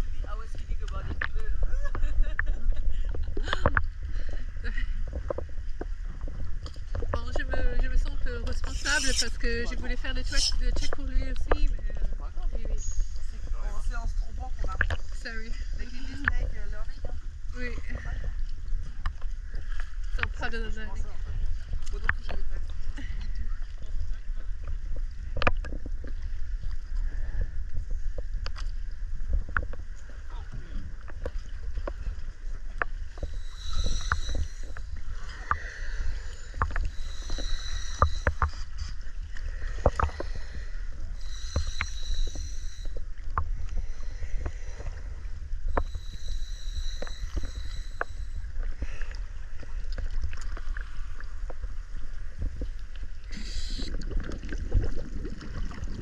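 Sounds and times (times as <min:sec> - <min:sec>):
boat engine rumbling: 0:00.0 - 0:29.1, 0:29.8 - 0:56.0
short high hisses: 0:33.2 - 0:38.8, 0:41.2 - 0:43.0, 0:45.7 - 0:48.4, 0:53.3 - 0:53.9.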